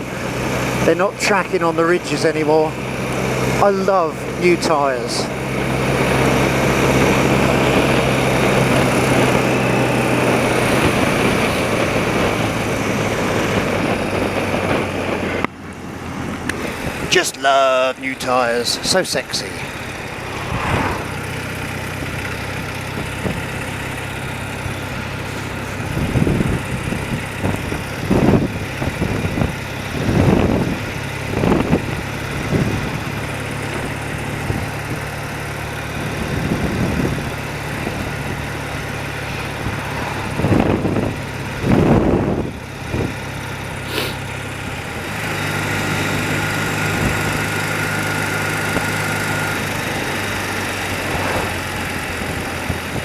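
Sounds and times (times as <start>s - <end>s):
motorcycle engine running: 0.0s - 53.0s
loud rushing swells: 18.3s - 22.9s, 38.4s - 41.7s, 49.8s - 52.8s.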